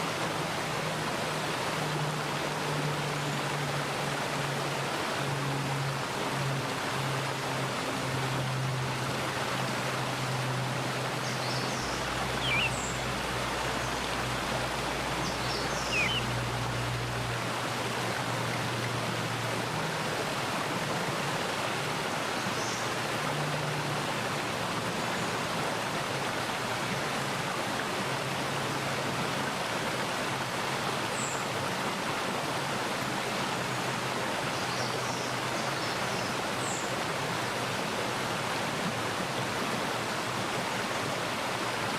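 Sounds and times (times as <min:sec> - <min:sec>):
stream running over rocks: 0:00.0 - 0:41.9
bird chirps: 0:12.4 - 0:13.0, 0:15.2 - 0:16.3.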